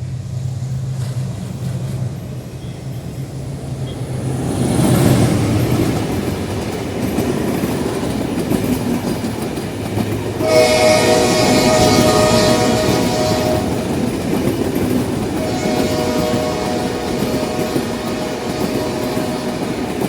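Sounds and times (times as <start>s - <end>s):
train wheels rumbling on rails: 0.0s - 20.0s
locomotive horn: 10.4s - 14.3s, 15.2s - 20.0s.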